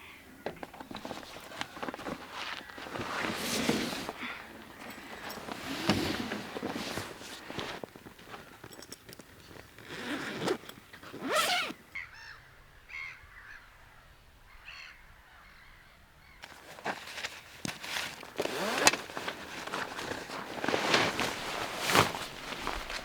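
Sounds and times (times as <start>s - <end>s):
rustling and scuffing outdoors: 0.0s - 11.8s, 16.3s - 23.0s
bird calling: 11.7s - 16.5s.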